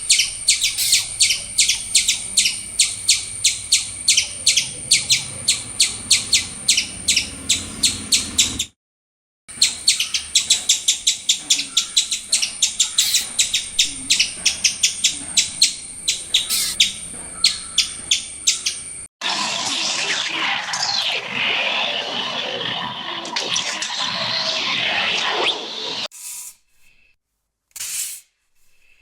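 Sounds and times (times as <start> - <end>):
small bird chirping rapidly: 0.0 - 8.8, 9.5 - 19.1.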